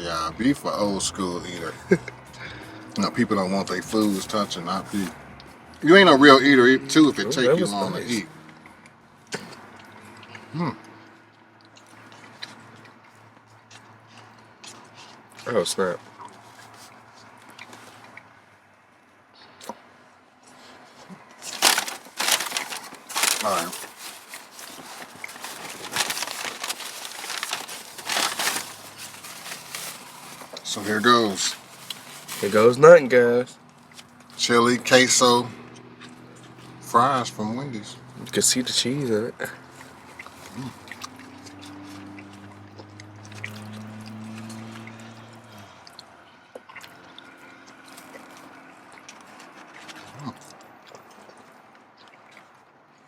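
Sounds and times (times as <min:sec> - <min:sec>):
food packaging crinkling: 0:03.9 - 0:05.1, 0:21.1 - 0:32.9
wet chewing: 0:07.9 - 0:18.6, 0:19.2 - 0:32.7, 0:33.6 - 0:34.4, 0:35.6 - 0:36.8, 0:39.4 - 0:53.0.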